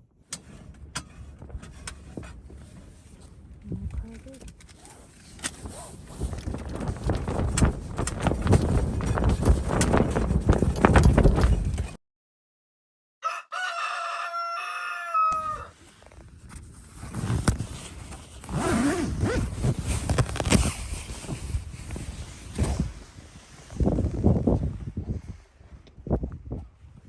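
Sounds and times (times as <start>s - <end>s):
wind gusting on microphone: 0.4s - 12.0s, 15.2s - 27.0s
rooster crowing: 13.2s - 15.8s.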